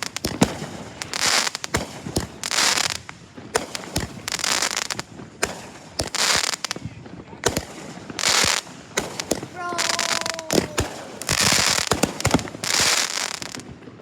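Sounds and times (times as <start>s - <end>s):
fireworks bangs: 0.0s - 14.0s
fireworks hissing burst: 8.1s - 13.6s.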